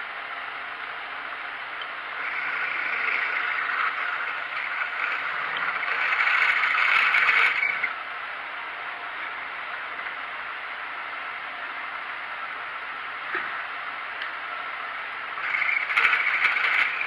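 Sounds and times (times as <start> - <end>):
drill scraping hiss: 2.1 - 8.0, 15.4 - 17.0
milling machine hiss: 2.1 - 8.0, 15.4 - 17.0.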